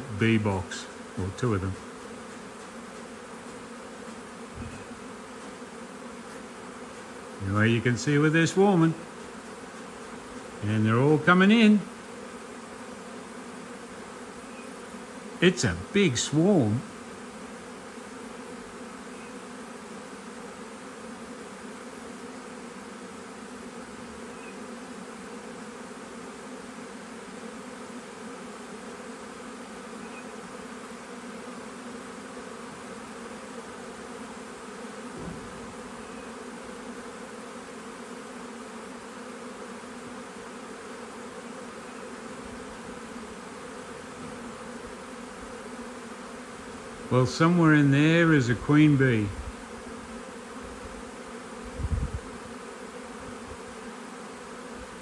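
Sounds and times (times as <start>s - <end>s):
bee swarm buzzing: 0.0s - 55.0s.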